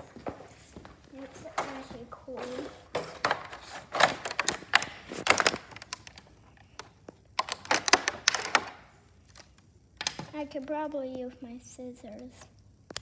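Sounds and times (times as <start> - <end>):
hand tool tapping and scraping: 0.0 - 6.2.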